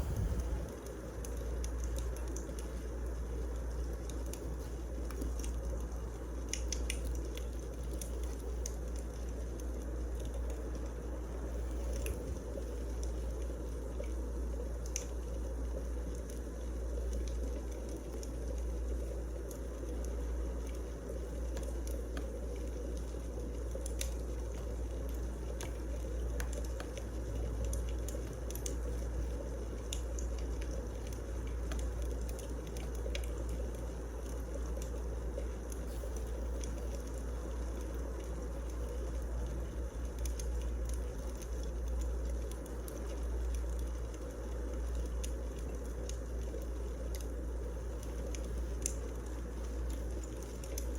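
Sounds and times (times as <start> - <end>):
fire flames rushing: 0.0 - 2.8
fire crackling and popping: 0.0 - 50.9.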